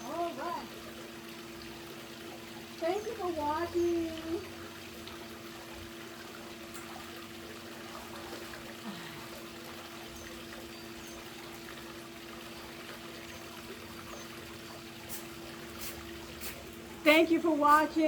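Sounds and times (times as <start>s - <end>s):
water trickling and pouring: 0.0s - 18.0s.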